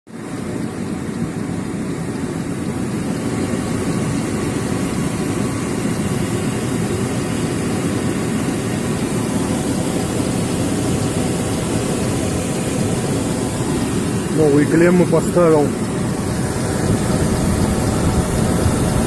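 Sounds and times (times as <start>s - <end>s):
car engine running: 8.9s - 19.0s.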